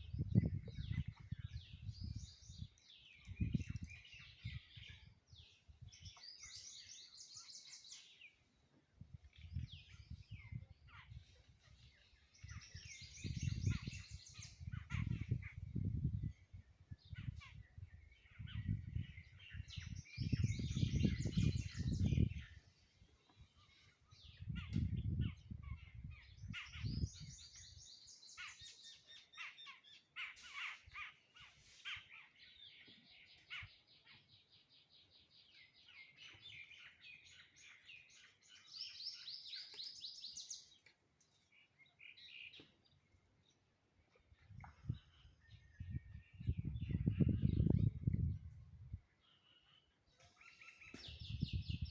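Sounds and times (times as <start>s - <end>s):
birds chirping trills: 0.1s - 51.9s.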